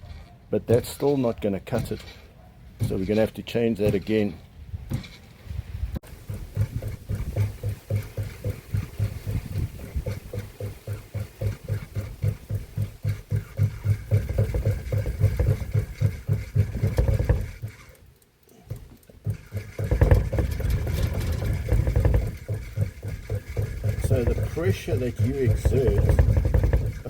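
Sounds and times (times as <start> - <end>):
pulsing motor hum: 6.0 - 27.0.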